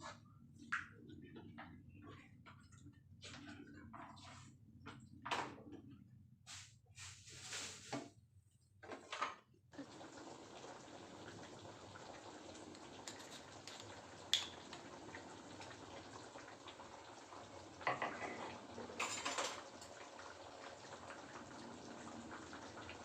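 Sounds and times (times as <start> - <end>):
pots and utensils clattering: 17.8 - 20.2.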